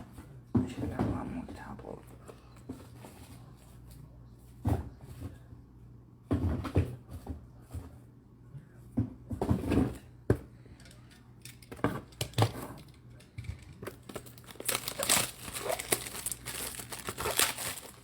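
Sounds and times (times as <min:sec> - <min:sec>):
plastic wrapping crinkling: 0:13.8 - 0:18.0.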